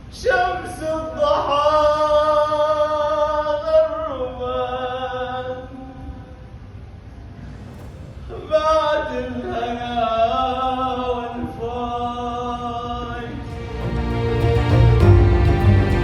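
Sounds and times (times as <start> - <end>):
music with strong bass: 13.5 - 16.0.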